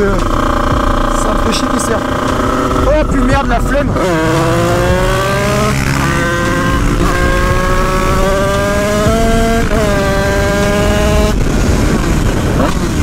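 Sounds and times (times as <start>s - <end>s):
two-stroke engine revving high: 0.0s - 13.0s.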